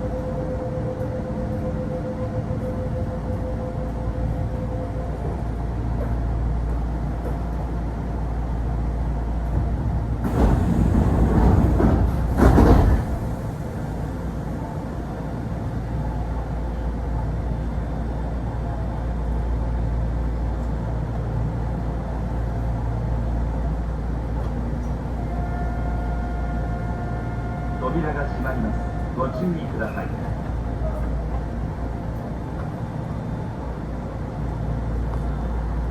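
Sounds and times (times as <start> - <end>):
train equipment hum: 0.0 - 35.9.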